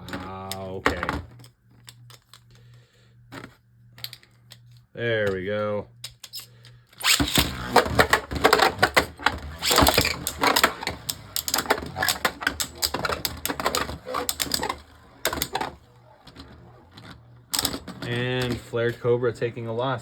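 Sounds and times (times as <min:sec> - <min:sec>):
spinning tops clashing: 0:07.0 - 0:15.7.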